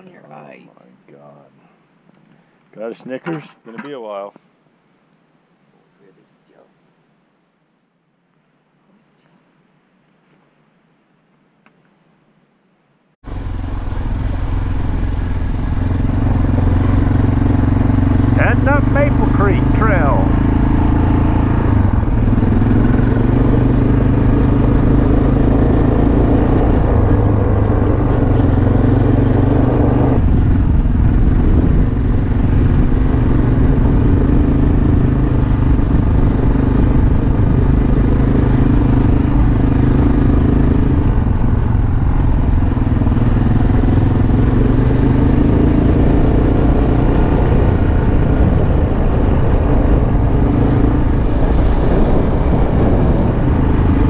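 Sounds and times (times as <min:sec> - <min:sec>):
dirt bike engine running: 0:13.2 - 0:54.0.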